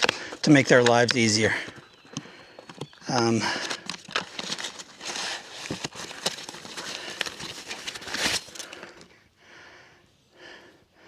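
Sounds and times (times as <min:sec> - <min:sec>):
packaging rustling and crinkling: 0:01.7 - 0:09.0.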